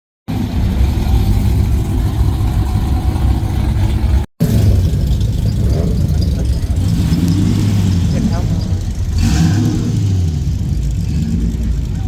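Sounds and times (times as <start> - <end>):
car engine rumbling: 0.3 - 12.0.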